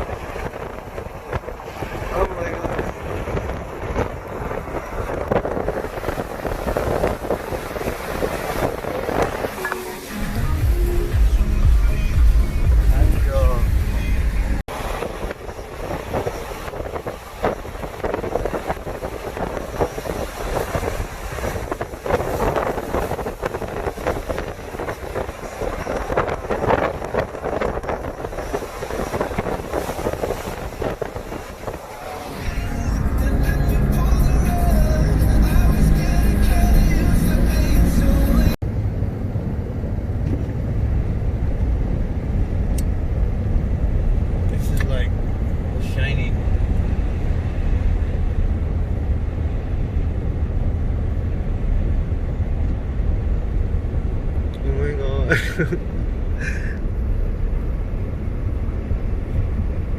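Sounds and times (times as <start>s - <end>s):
wind buffeting microphone: 0.0s - 37.1s, 38.6s - 59.9s
truck road noise: 0.0s - 59.9s
background music: 9.5s - 14.6s, 32.3s - 38.6s.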